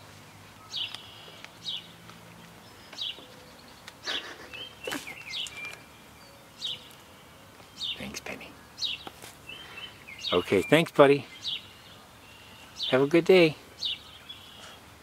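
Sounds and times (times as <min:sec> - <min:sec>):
short high bird chirps: 0:00.6 - 0:01.4, 0:04.4 - 0:05.9.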